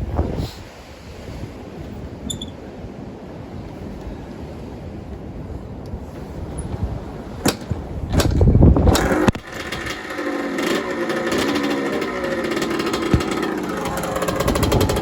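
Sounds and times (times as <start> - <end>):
kick-starter clanking: 7.5 - 15.0
two-stroke engine sputtering and running: 8.2 - 15.0.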